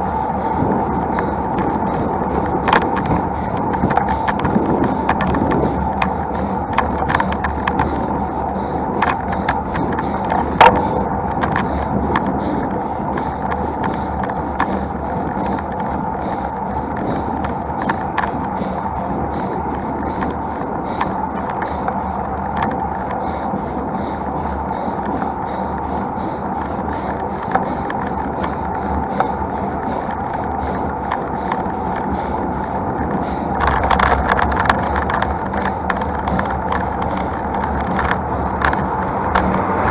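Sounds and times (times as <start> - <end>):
bicycle riding noise: 0.0 - 39.9
small rattling clicks: 0.0 - 39.9.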